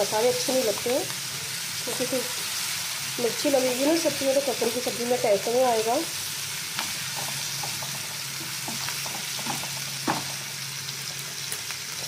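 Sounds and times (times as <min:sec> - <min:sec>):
vegetables sizzling in hot oil: 0:00.0 - 0:12.0
spatula scraping and tapping pan: 0:06.8 - 0:10.4.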